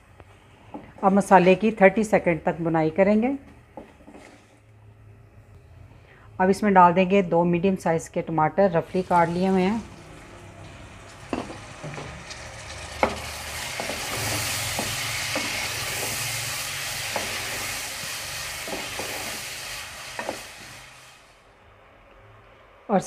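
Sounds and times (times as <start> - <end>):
tomatoes sizzling in hot oil: 8.8 - 21.4.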